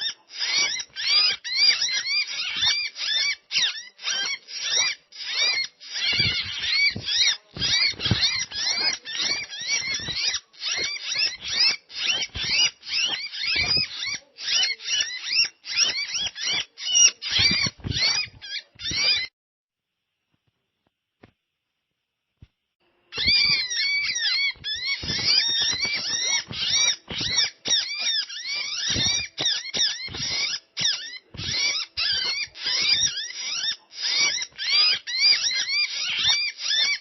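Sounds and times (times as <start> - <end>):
birds chattering: 0.0 - 19.3, 23.1 - 37.0.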